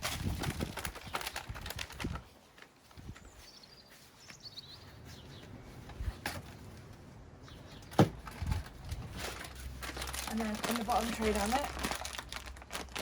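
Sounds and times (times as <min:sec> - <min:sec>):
bird chirping: 0:03.0 - 0:08.6.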